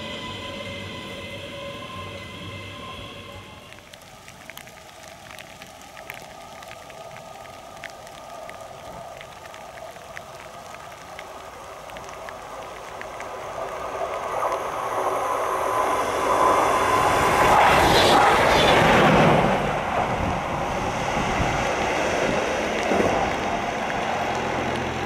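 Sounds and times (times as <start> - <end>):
train passing close by: 0.0 - 4.0, 13.4 - 25.0.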